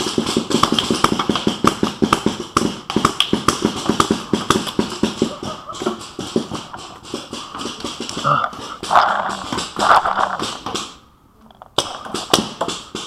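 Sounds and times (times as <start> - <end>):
running footsteps: 0.0 - 11.0, 11.7 - 13.0
gear jostling: 6.0 - 10.8.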